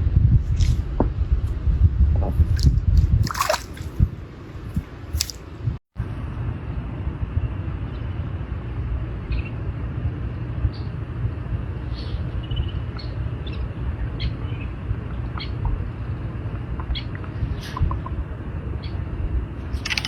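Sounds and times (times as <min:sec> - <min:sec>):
water splashing and squelching: 0:02.3 - 0:05.6.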